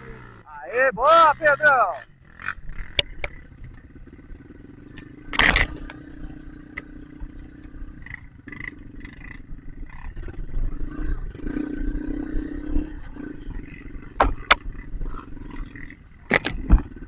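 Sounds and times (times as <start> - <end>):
dirt bike engine running: 1.2 - 17.0
clicks and clatter: 4.9 - 6.9, 16.3 - 16.9.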